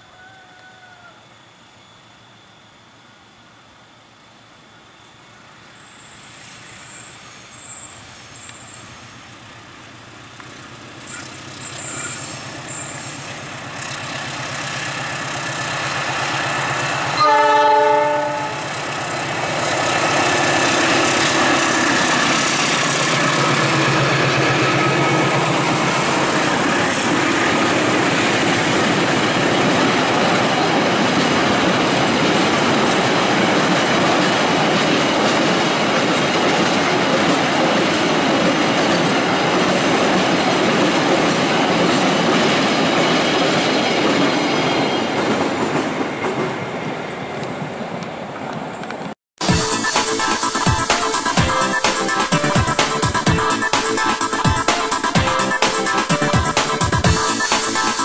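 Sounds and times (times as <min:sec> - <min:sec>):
locomotive engine: 0:07.1 - 0:49.2
train horn: 0:17.2 - 0:18.9.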